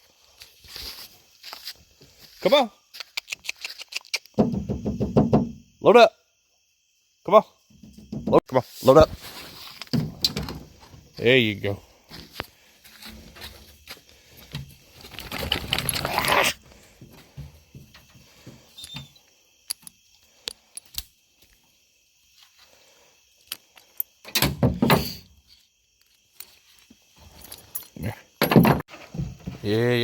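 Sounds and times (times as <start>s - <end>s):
clinks and knocks: 27.2s - 29.6s.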